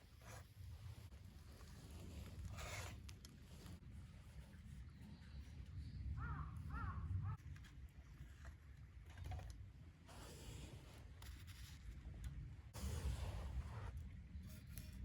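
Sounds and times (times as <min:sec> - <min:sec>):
crow cawing: 0:06.2 - 0:07.4.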